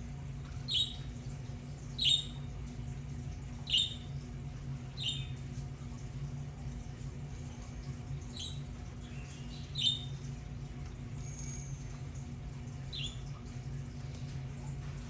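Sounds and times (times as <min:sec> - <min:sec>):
steady low hum: 0:00.0 - 0:15.0
budgerigar chirping: 0:00.7 - 0:01.0, 0:02.0 - 0:02.4, 0:03.7 - 0:04.0, 0:05.0 - 0:05.3, 0:09.5 - 0:10.1.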